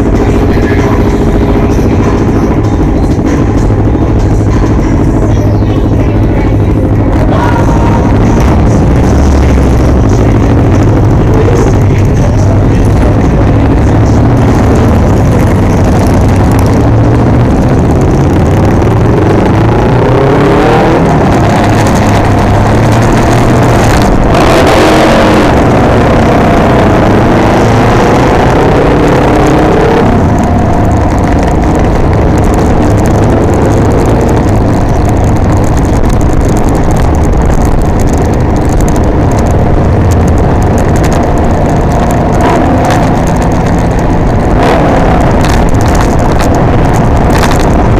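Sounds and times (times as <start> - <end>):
three-wheeler engine: 0.0 - 47.9
wind noise: 13.4 - 47.9.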